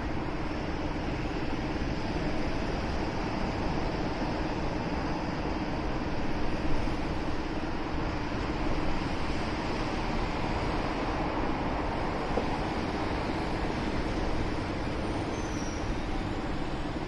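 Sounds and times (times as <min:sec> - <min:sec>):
city traffic: 0:00.0 - 0:17.0.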